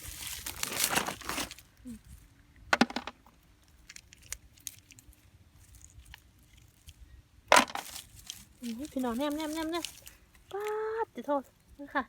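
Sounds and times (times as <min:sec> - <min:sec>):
shellfish shells clicking: 0:03.7 - 0:05.2.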